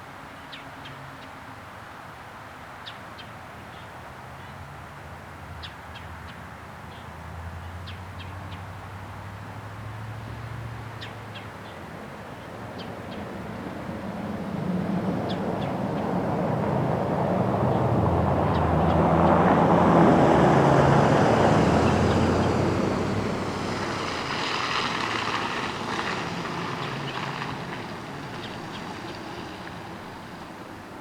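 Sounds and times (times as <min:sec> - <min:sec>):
passing engine droning: 0:13.4 - 0:31.0.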